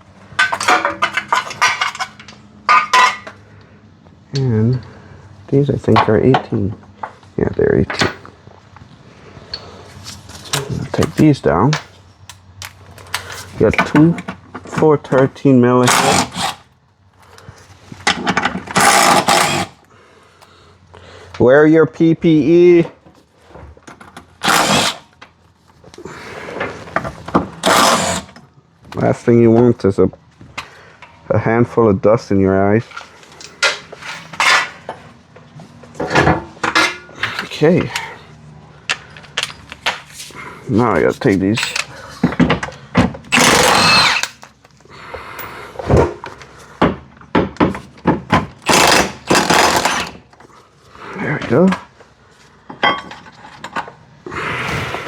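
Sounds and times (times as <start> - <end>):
tools and metal parts clanking: 0.0 - 3.4, 5.8 - 8.4, 9.5 - 16.6, 17.9 - 19.8, 32.8 - 38.2, 38.8 - 40.4, 41.0 - 44.8, 45.4 - 50.5, 52.6 - 54.1
tool and bolt rattling: 0.2 - 3.4, 18.0 - 19.8, 32.9 - 35.0, 41.2 - 44.7, 46.9 - 50.4
impact wrench bursts: 15.8 - 16.6, 18.6 - 19.8, 24.4 - 25.1, 27.6 - 28.4, 43.3 - 44.5, 48.6 - 50.2.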